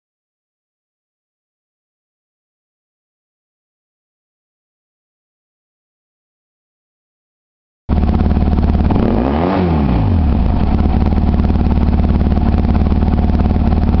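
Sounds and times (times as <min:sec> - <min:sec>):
motorcycle engine revving and idling: 0:07.9 - 0:14.0.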